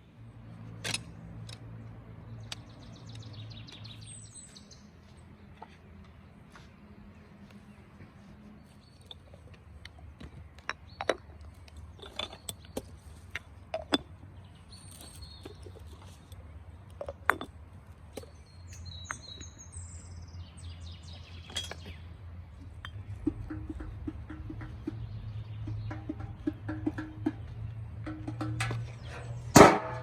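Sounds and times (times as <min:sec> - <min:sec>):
small birds chirping: 0:02.2 - 0:17.3, 0:17.9 - 0:29.6
objects knocking and clinking: 0:09.0 - 0:14.2, 0:16.9 - 0:17.6, 0:21.4 - 0:22.0.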